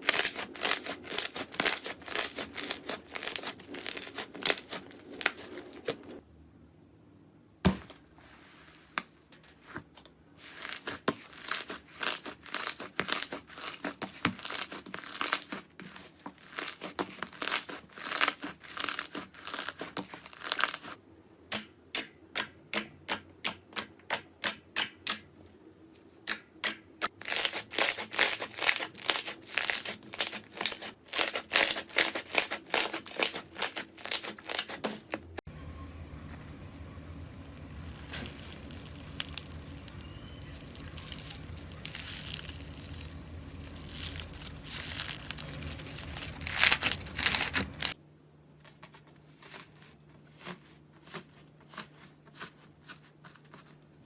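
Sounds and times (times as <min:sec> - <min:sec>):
slime crackling and popping: 0:00.0 - 0:06.2, 0:10.6 - 0:15.7, 0:16.4 - 0:21.0, 0:27.2 - 0:34.9, 0:37.6 - 0:48.0.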